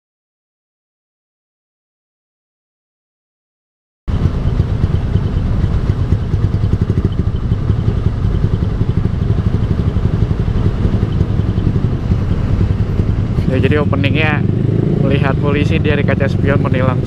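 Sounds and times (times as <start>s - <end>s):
motorcycle engine exhaust pulsing: 4.1s - 17.0s.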